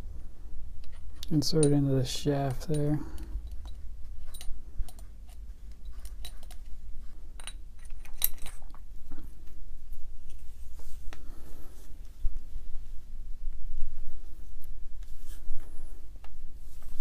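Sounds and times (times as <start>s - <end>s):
low steady hum: 0.0s - 17.0s
metal parts clicking and clinking: 0.8s - 6.7s, 7.4s - 8.7s.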